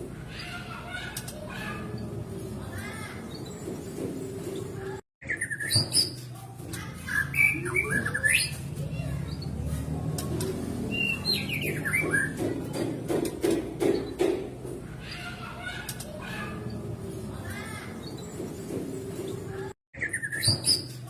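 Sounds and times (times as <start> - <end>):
bird singing whistles and chirps: 5.2 - 6.3, 7.1 - 8.6, 20.0 - 21.0.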